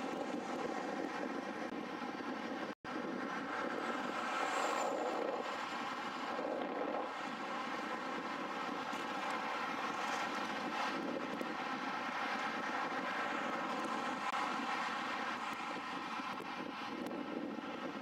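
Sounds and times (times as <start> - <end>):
steady engine drone: 0.0 - 18.0.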